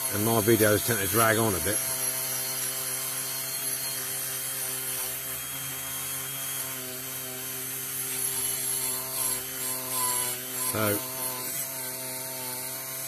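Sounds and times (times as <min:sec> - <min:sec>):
rotary tool grinding: 0:00.0 - 0:13.0.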